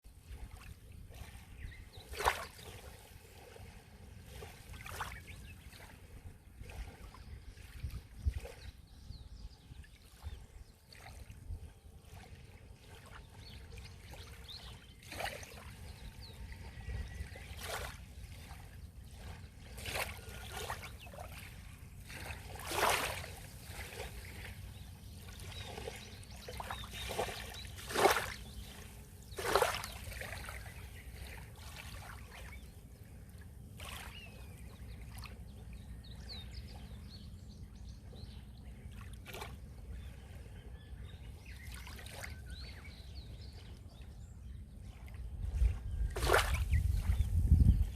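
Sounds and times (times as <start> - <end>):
waves splashing at shoreline: 0.1 - 8.7, 10.1 - 37.0, 44.9 - 47.2.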